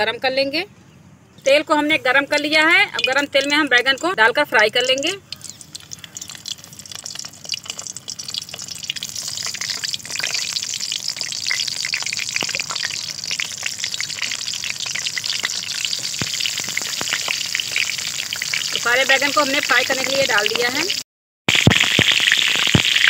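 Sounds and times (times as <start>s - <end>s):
vegetables sizzling in hot oil: 2.4s - 23.0s.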